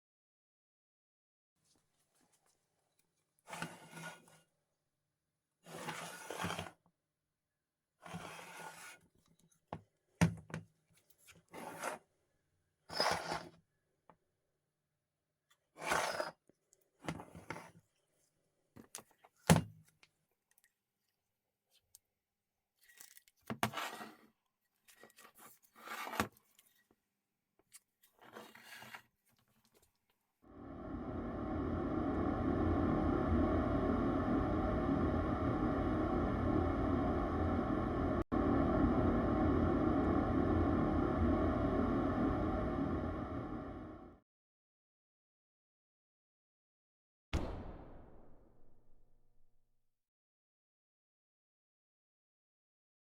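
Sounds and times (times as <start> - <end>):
motor running steadily: 30.5 - 44.2.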